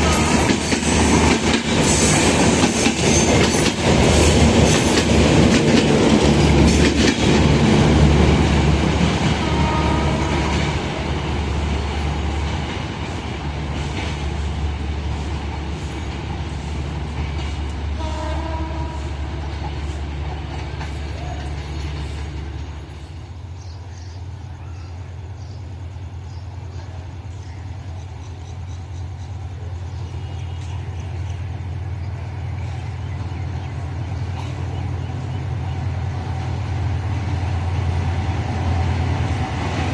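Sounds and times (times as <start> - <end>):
train horn tones: 0.0 - 0.6, 9.3 - 11.1, 17.9 - 19.4
diesel train passing: 0.0 - 39.9.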